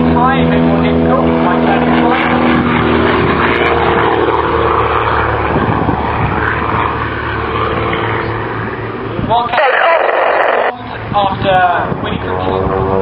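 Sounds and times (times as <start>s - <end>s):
propeller aircraft engine drone: 0.0s - 13.0s
rush of noise: 8.4s - 13.0s.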